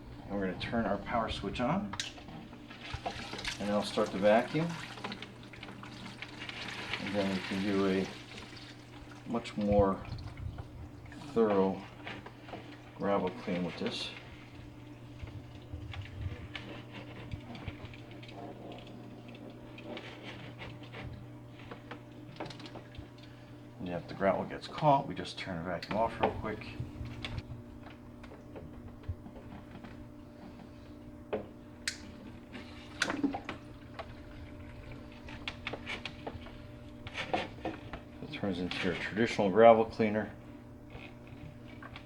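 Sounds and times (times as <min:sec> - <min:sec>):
aquarium gravel vacuum humming: 0:00.0 - 0:42.0
water sloshing: 0:01.9 - 0:25.1.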